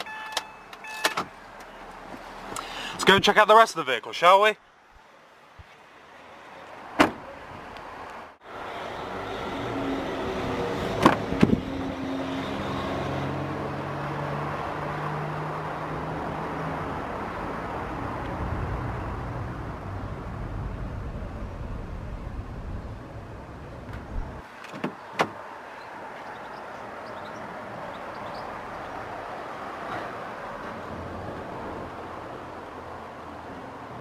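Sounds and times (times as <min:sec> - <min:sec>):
passing vehicle engine hum: 0:07.6 - 0:24.4.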